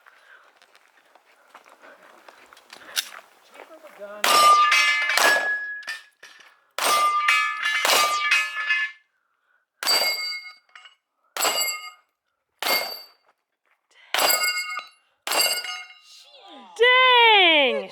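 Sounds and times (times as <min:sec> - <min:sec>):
pistol shots: 0:04.2 - 0:05.8
steel plate ringing: 0:04.2 - 0:06.1, 0:06.8 - 0:09.0, 0:09.8 - 0:12.0, 0:12.6 - 0:13.2, 0:14.2 - 0:16.1.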